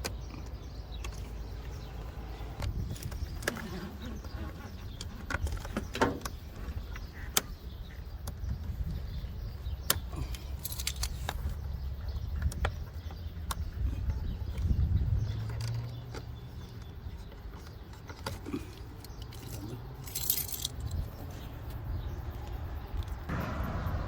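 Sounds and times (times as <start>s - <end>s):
plastic and metal parts clicking: 9.8s - 14.8s, 15.4s - 21.0s
low rumble: 23.3s - 24.0s.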